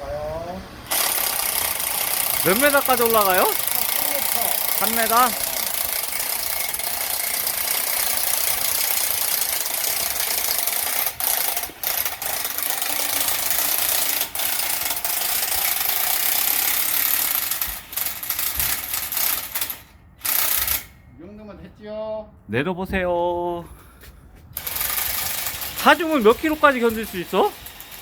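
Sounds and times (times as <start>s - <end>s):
winch mechanical grinding: 0.7s - 20.9s, 24.6s - 28.0s.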